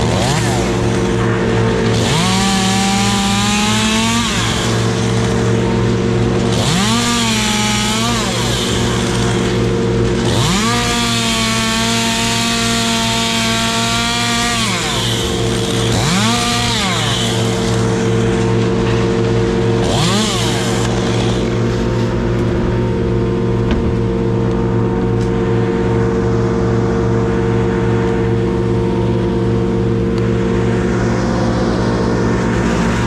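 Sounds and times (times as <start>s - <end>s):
chainsaw revving: 0.0s - 24.4s, 32.4s - 33.0s
chainsaw engine idling: 0.0s - 25.4s.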